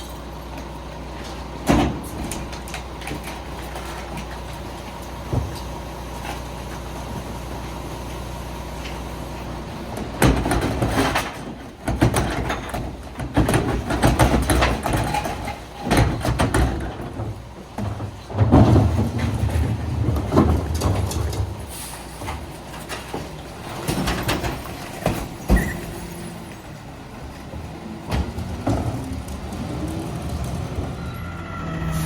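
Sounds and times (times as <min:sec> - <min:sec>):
garbage truck engine idling: 0:00.0 - 0:32.0
collection gear clanking and banging: 0:10.2 - 0:26.6.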